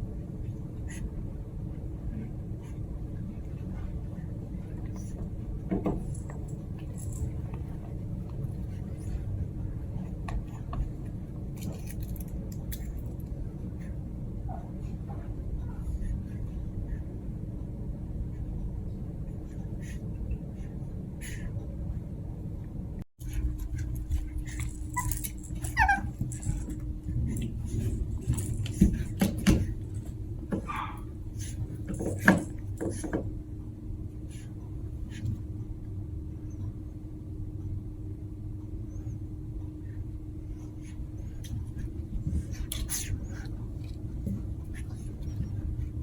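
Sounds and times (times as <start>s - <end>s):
steady low hum: 0.0s - 46.0s
puppies squeaking: 24.2s - 26.9s.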